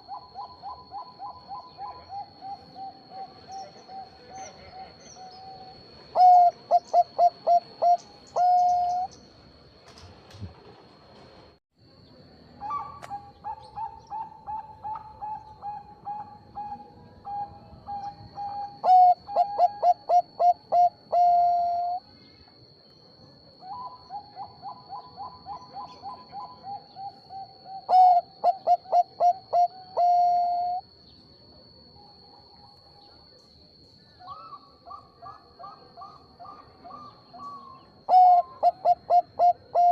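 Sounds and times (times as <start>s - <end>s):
dove cooing: 0.0s - 9.1s, 12.6s - 22.0s, 23.7s - 30.8s, 34.3s - 39.9s.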